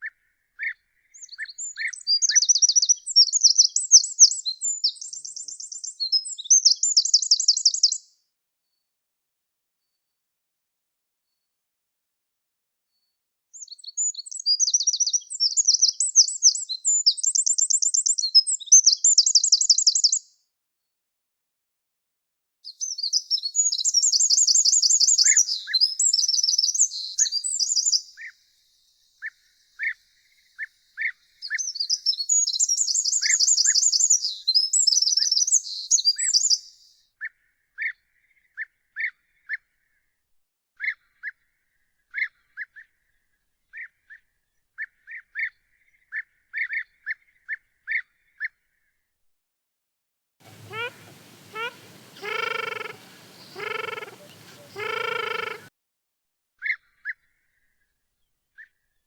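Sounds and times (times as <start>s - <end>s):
bird call notes: 50.5s - 55.7s
songbird twittering trills: 50.5s - 55.7s.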